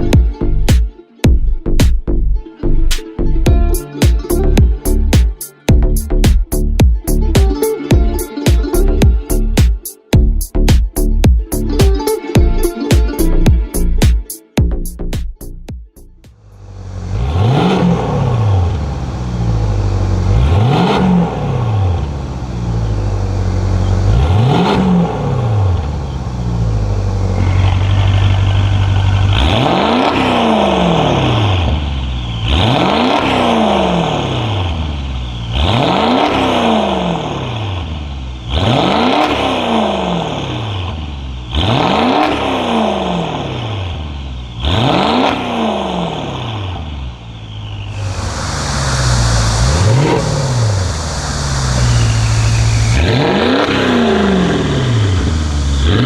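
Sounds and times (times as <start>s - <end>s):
car engine idling: 16.3s - 56.0s
car engine revving: 16.3s - 56.0s.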